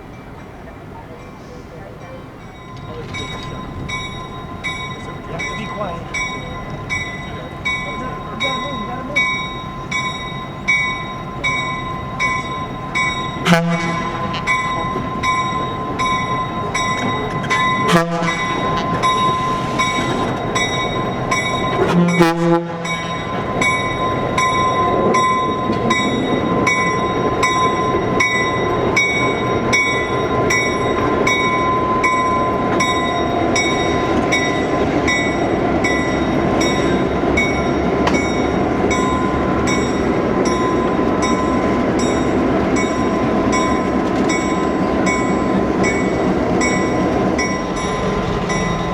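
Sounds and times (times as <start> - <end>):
locomotive bell ringing: 0.0 - 48.9
locomotive engine and rail noise: 0.0 - 48.9
locomotive horn blasts: 13.4 - 14.8, 17.4 - 20.4, 21.8 - 23.3.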